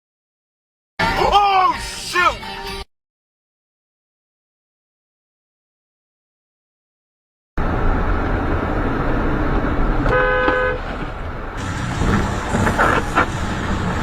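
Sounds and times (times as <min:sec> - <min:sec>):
traffic and engine noise: 0:07.6 - 0:14.0
car horn honk: 0:10.1 - 0:10.8.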